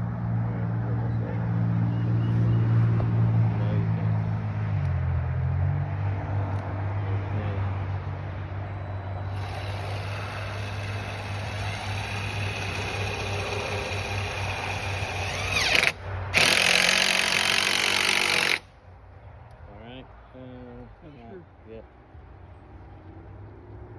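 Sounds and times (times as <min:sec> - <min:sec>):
power drill driving screws: 0:09.3 - 0:18.6.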